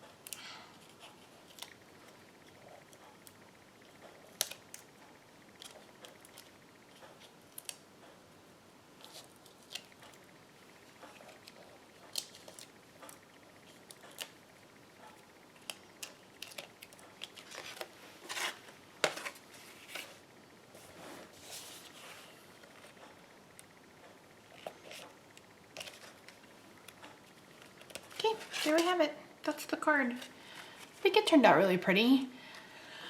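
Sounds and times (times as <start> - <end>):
paper rustling: 27.6 - 29.0.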